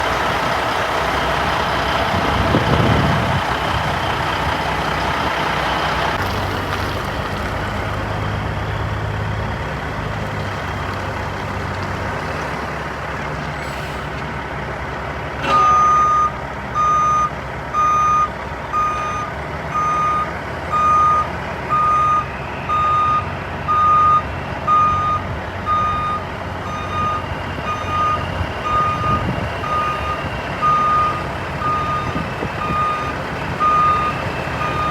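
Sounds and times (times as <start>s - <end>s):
truck engine running: 0.0s - 34.9s
reversing alarm beeping: 15.4s - 34.9s.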